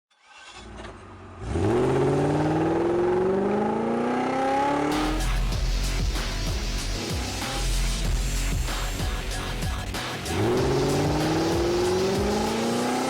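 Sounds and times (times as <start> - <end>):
car engine accelerating hard: 1.0 - 8.4, 10.2 - 13.0
music: 4.9 - 13.0.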